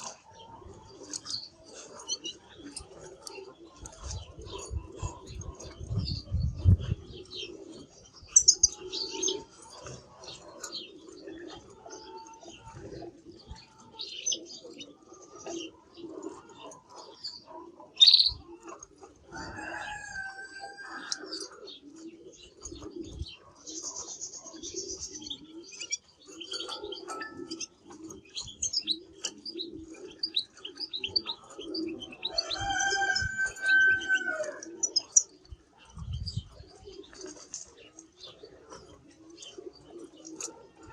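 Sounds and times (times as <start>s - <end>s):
canary singing: 8.3s - 10.0s.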